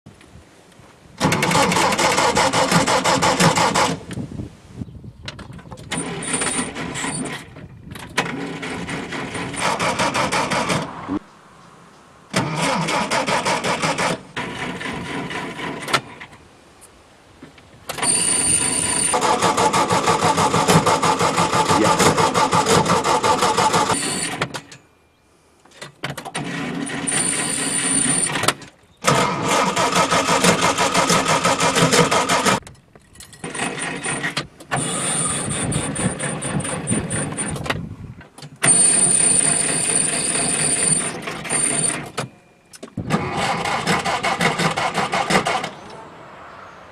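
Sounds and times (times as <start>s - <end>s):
car engines starting and revving: 1.2s - 4.1s, 5.9s - 16.4s, 17.9s - 24.5s, 26.3s - 32.6s, 42.9s - 46.9s.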